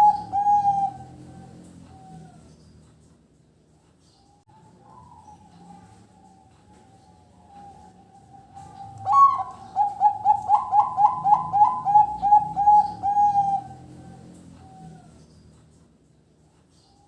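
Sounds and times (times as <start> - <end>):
dove cooing: 0.0 - 2.6, 4.6 - 15.4.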